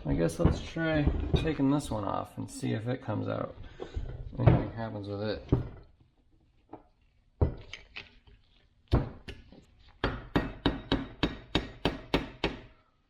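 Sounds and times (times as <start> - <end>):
hammer knocking on metal: 10.0 - 12.7.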